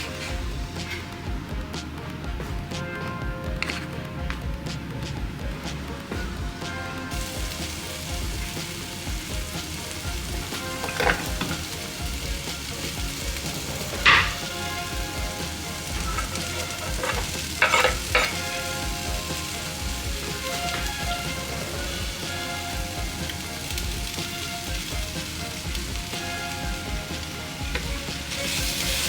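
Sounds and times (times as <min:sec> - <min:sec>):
food sizzling in a pan: 0:06.6 - 0:29.0
utensil knocking against pan: 0:13.9 - 0:14.6, 0:16.0 - 0:18.6.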